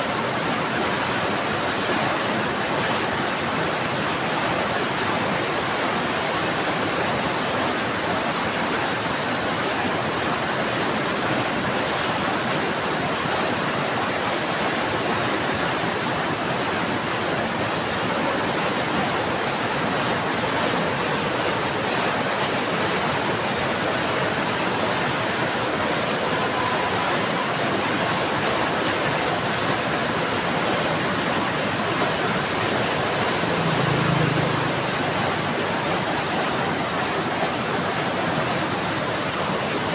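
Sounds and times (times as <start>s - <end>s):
heavy rain pouring: 14.8s - 39.9s.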